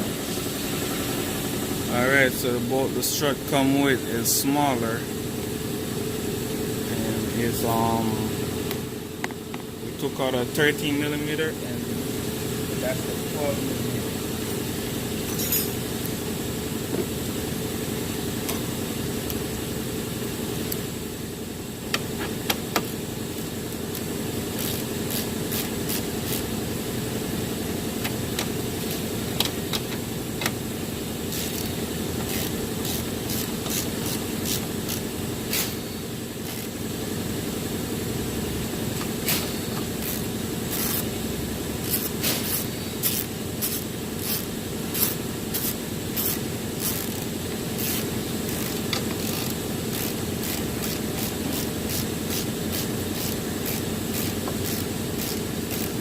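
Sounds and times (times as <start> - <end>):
steady low hum: 0.0 - 56.0
metal tool clicks and clinks: 15.3 - 15.8.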